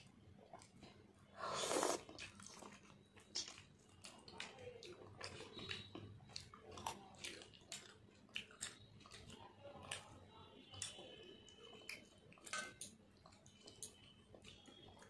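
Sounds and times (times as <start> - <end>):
person chewing with lip smacks: 0.4 - 10.2.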